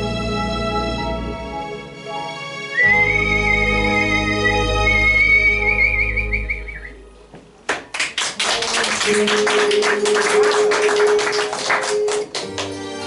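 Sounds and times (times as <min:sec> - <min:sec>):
whistled melody: 0:02.7 - 0:07.1
audience clapping: 0:07.6 - 0:13.0.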